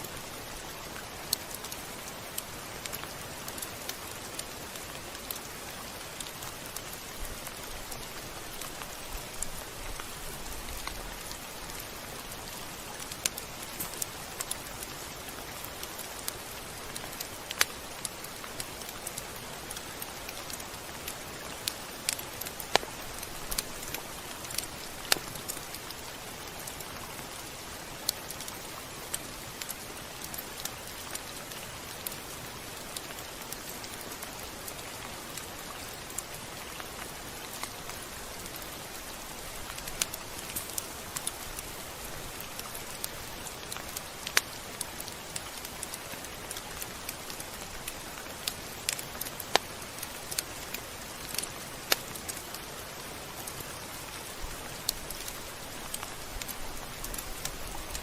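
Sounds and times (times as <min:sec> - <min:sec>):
steady rain hiss: 0:00.0 - 0:58.0
raindrops tapping on a surface: 0:00.1 - 0:58.0.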